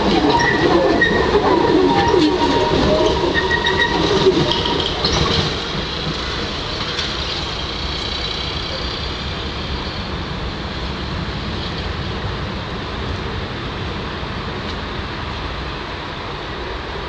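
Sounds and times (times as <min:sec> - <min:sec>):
tram wheels squealing: 0:00.0 - 0:12.0
tram rail rumble: 0:00.0 - 0:17.0.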